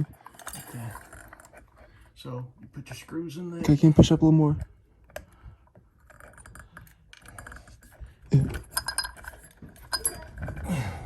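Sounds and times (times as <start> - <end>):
small metal parts clinking: 0.0 - 1.8, 6.0 - 10.7.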